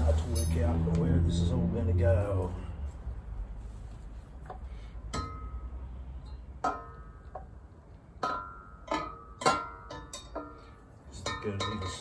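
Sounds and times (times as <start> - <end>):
exhaust pipe clinking against metal: 4.5 - 12.0.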